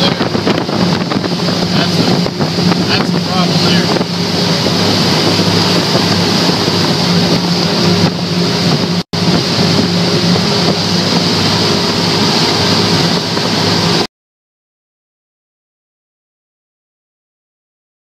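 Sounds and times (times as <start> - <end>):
outboard engines droning: 0.0 - 14.1
wind on microphone: 0.0 - 14.1.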